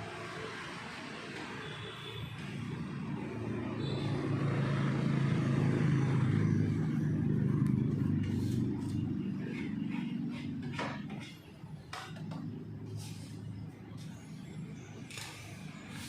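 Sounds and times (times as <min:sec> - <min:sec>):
low motor hum: 0:05.1 - 0:11.4.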